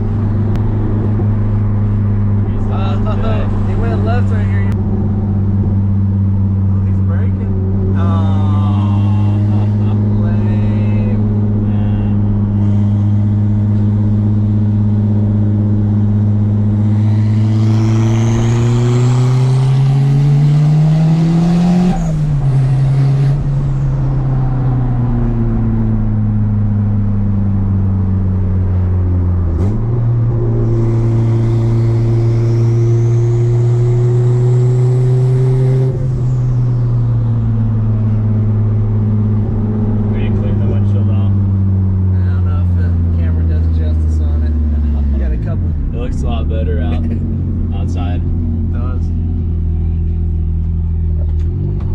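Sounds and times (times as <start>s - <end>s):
turbocharged engine pulling hard: 0.0s - 51.9s
high turbo whistle: 30.4s - 34.4s.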